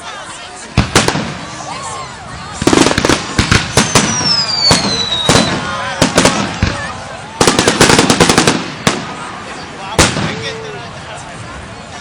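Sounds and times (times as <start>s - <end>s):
fireworks bangs: 0.7s - 1.9s, 2.5s - 10.7s
firework falling whistle: 3.6s - 5.7s.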